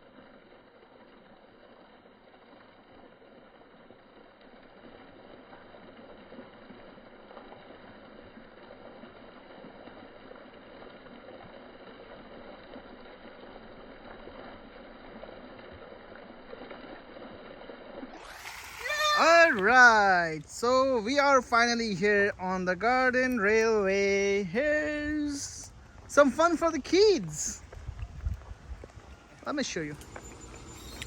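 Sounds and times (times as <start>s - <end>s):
faint outdoor background noise: 0.0s - 31.0s.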